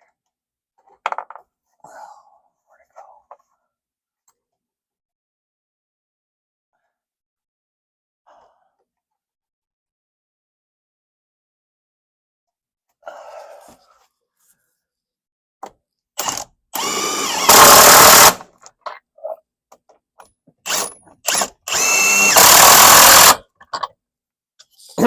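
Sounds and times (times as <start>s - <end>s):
impact driver whining: 16.2s - 18.5s, 20.7s - 23.4s.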